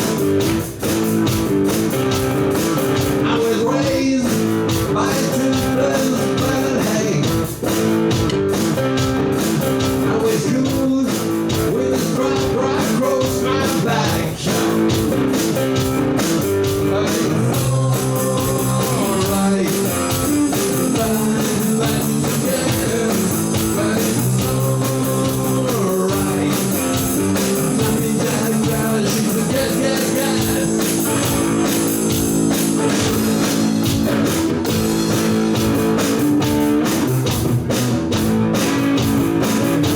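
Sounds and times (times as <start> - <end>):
drums: 0.0 - 39.9
electric guitars: 0.0 - 39.9
person singing: 3.2 - 7.4, 9.8 - 15.0, 16.7 - 31.6.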